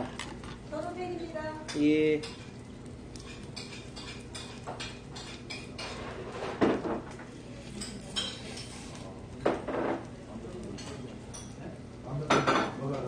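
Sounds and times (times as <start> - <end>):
tableware clinking: 7.7 - 10.1, 12.2 - 12.9.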